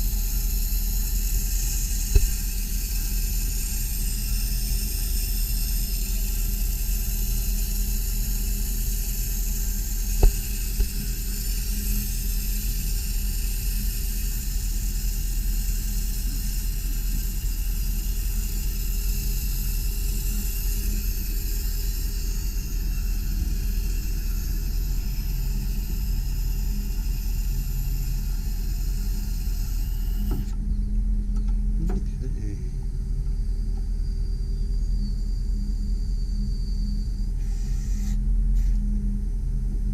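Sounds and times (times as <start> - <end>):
hydraulic hiss: 0.0 - 30.6, 36.7 - 38.9
truck engine rumbling: 31.7 - 32.8.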